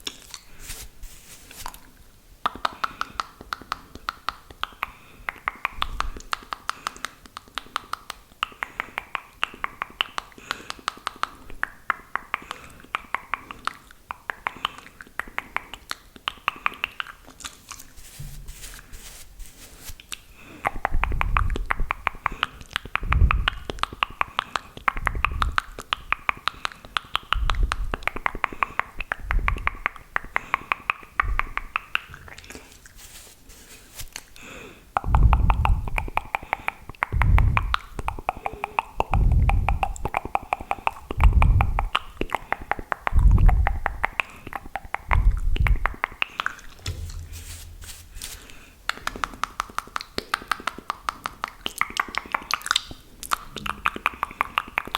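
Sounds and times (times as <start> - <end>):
saliva clicks and lip smacks: 1.6 - 18.0, 19.9 - 33.0, 35.0 - 46.8, 48.3 - 54.9
low thud: 46.8 - 47.9.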